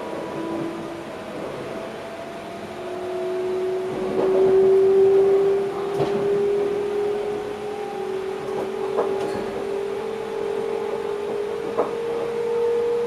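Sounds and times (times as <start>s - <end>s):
train traction drive whining: 0.0s - 13.0s
wheels knocking on track: 10.8s - 13.0s.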